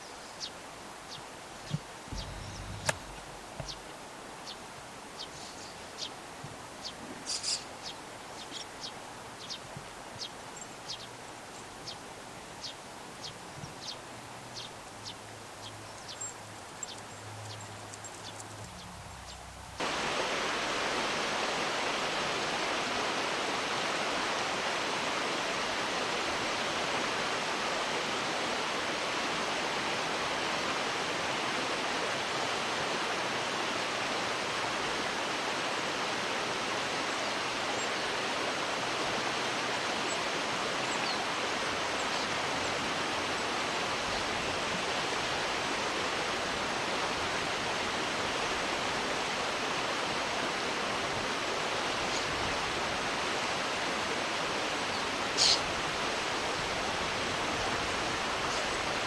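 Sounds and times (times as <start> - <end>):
sparrows chirping: 0.0 - 3.8, 5.2 - 6.2, 6.8 - 12.0, 12.6 - 14.0, 14.6 - 19.6, 54.9 - 55.6
river water rushing: 0.0 - 59.0.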